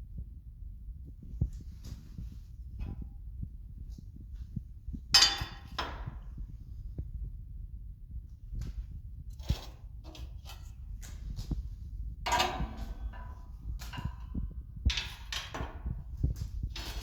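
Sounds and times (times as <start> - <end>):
metal tools clinking and scraping: 5.2 - 6.0, 12.3 - 14.3, 16.7 - 17.0.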